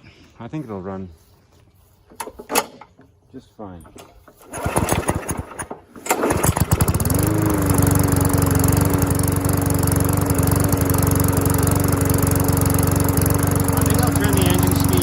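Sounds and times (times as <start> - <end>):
lawn mower engine running: 3.8 - 15.0.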